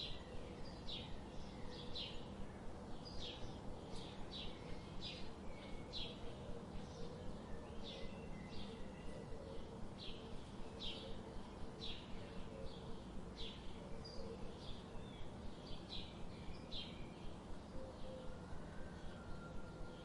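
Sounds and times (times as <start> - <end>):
outdoor background noise: 0.0 - 20.0
bird chirping: 3.0 - 18.4.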